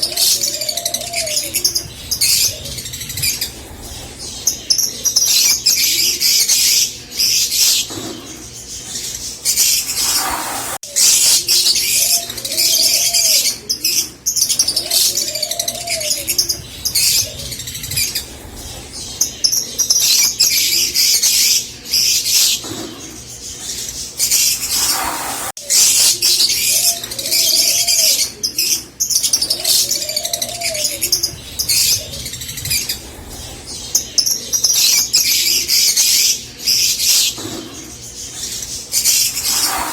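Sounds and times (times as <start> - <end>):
lovebirds chattering and chirping: 0.0 - 39.9
lower arching bird calls: 39.0 - 39.9.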